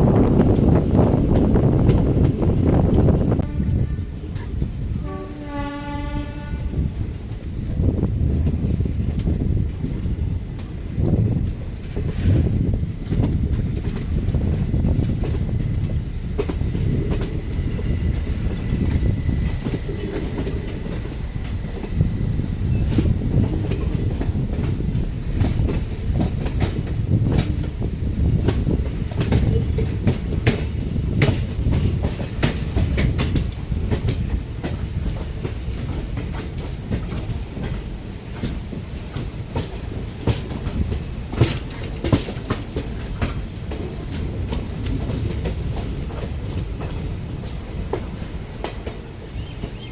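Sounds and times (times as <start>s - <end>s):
train wheels rumbling on rail: 0.0s - 49.9s
wheels clacking over rail joints: 22.7s - 49.9s.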